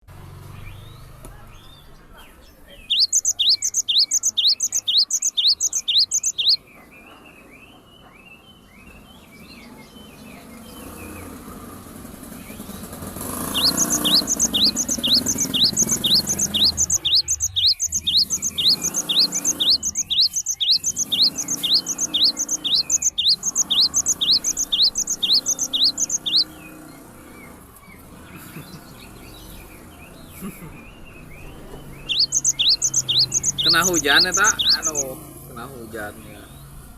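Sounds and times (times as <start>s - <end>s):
bird whistling rising chirps: 2.8s - 6.6s, 13.3s - 26.6s, 31.1s - 35.1s.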